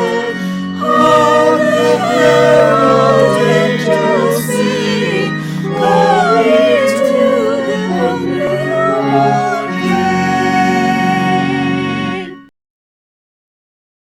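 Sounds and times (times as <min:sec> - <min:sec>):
instrumental accompaniment chords: 0:00.0 - 0:12.5
person singing: 0:00.0 - 0:12.5.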